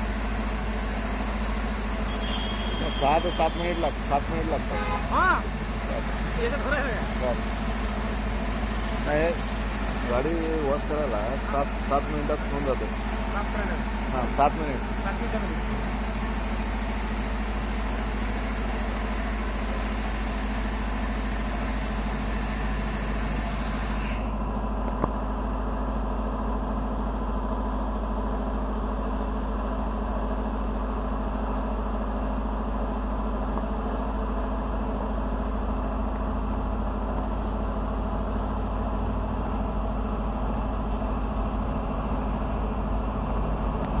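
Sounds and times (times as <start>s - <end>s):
car wash motor hum: 0.0s - 44.0s
water spraying hiss: 7.3s - 10.2s.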